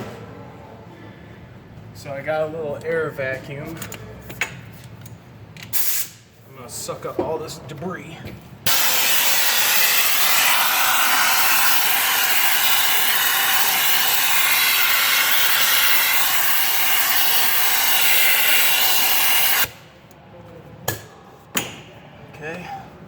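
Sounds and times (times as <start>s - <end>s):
air vacuum hissing: 8.7s - 19.8s.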